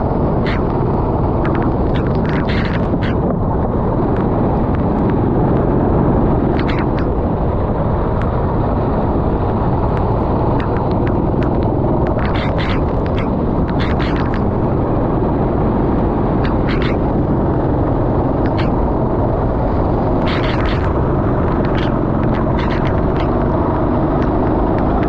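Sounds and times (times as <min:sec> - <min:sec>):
sharp clicks: 0:00.4 - 0:03.4, 0:06.5 - 0:07.2, 0:09.9 - 0:14.5, 0:16.4 - 0:17.6, 0:18.4 - 0:18.8, 0:20.1 - 0:23.6
kart engine running: 0:09.1 - 0:25.0.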